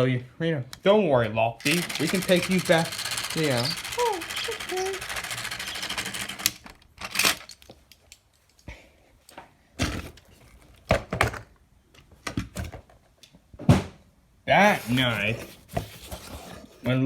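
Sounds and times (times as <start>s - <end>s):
small motor clattering: 1.6s - 7.6s
plastic toy pieces clacking: 1.6s - 8.6s.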